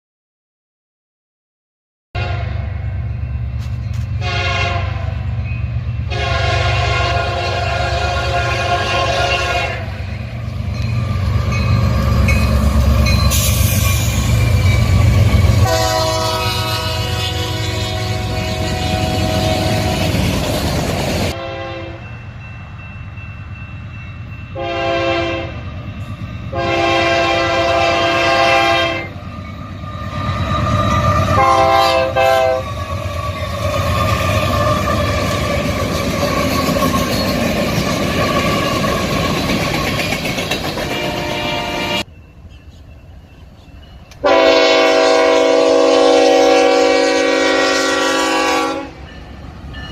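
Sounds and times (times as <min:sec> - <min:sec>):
train air horn blasts: 0:02.2 - 0:02.8, 0:04.2 - 0:05.3, 0:06.1 - 0:10.1, 0:15.2 - 0:20.3, 0:21.2 - 0:22.1, 0:24.5 - 0:25.6, 0:26.5 - 0:29.2, 0:30.8 - 0:32.8, 0:40.8 - 0:42.1, 0:44.2 - 0:49.1.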